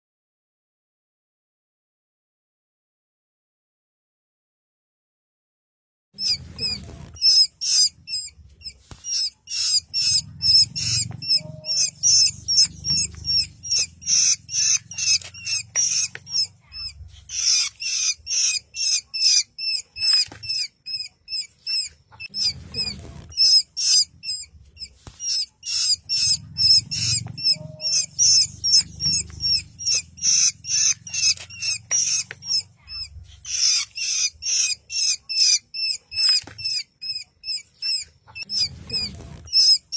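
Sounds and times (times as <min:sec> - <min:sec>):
owl chick chirping: 0:06.2 - 0:39.9
low rumble: 0:09.8 - 0:17.3, 0:26.0 - 0:33.5.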